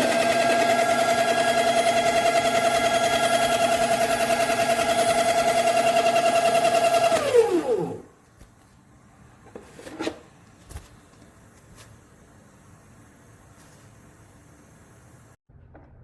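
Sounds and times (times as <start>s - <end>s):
coffee grinder motor running: 0.0s - 8.1s.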